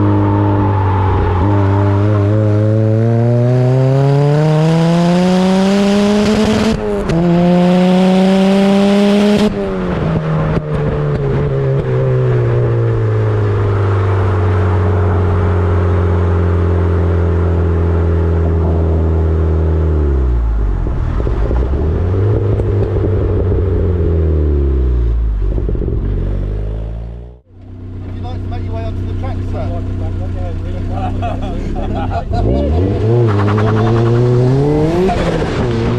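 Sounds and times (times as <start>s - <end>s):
car engine accelerating: 0.0s - 35.9s.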